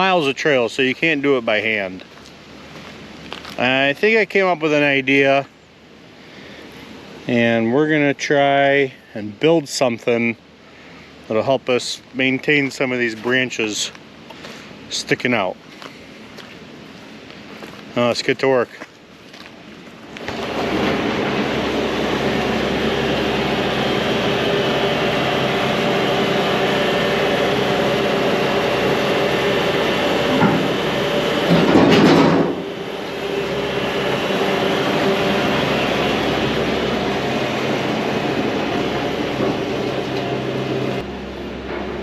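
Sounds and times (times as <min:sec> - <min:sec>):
diesel machinery rumbling and clattering: 0:00.0 - 0:10.3, 0:19.3 - 0:42.0.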